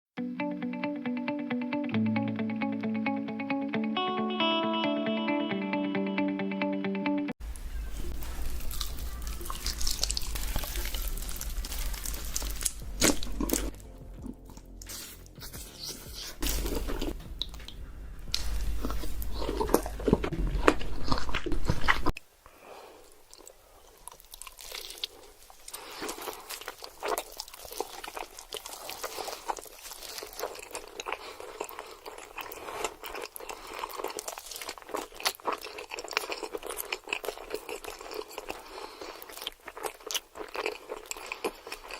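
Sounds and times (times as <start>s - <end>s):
crunchy food chewing: 8.0s - 22.2s, 23.0s - 41.9s
low background hum: 16.0s - 22.1s.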